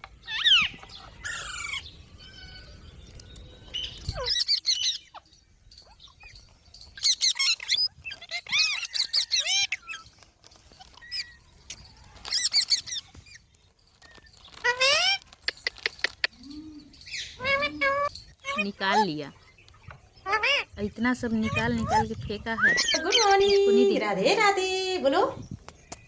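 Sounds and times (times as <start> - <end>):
parrot screeching calls: 0.2 - 2.8, 3.8 - 5.2, 7.0 - 10.1, 12.2 - 13.4, 14.5 - 15.2, 17.1 - 19.1, 20.2 - 20.7, 21.4 - 23.6.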